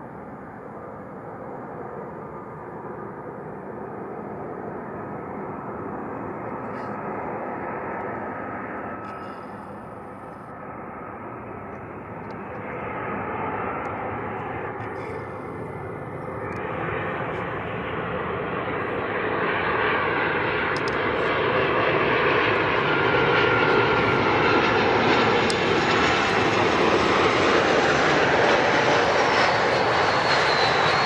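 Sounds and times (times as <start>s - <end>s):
jet engines passing: 0.0s - 31.0s
faint thin whine: 6.0s - 17.6s.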